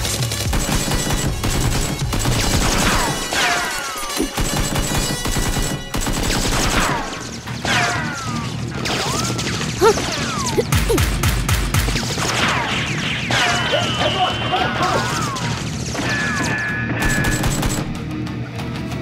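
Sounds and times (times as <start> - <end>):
rapid gunfire: 0.0 - 7.9, 17.0 - 18.0.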